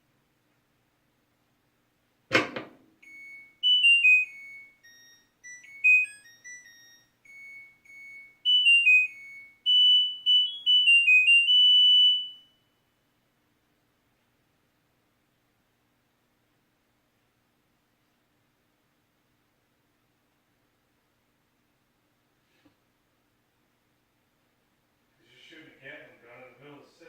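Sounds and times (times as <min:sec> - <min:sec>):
washing machine beeper tune: 0:03.0 - 0:12.7.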